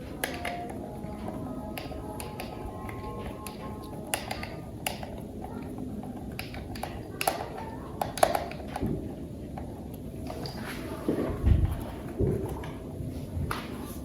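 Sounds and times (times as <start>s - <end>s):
low steady background noise: 0.0s - 14.0s
plastic toy parts clicking: 0.2s - 0.8s, 1.7s - 9.0s.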